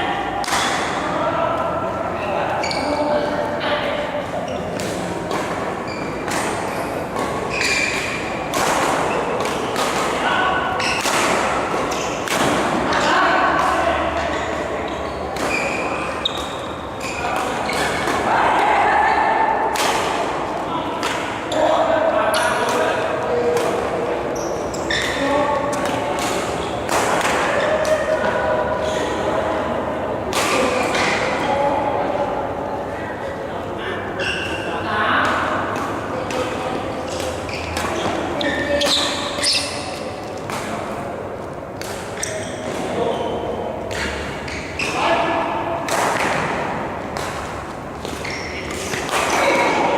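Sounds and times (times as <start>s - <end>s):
rackets hitting shuttlecock: 0.4s - 1.1s, 4.2s - 18.3s, 19.6s - 21.5s, 22.3s - 28.4s, 30.3s - 31.4s, 35.2s - 49.9s
shoes squeaking on court: 2.6s - 3.0s, 5.7s - 8.4s, 14.3s - 18.1s, 24.2s - 25.3s, 37.1s - 40.5s, 42.1s - 45.0s, 48.0s - 49.7s
rackets striking shuttlecock: 4.7s - 12.8s, 45.6s - 49.9s.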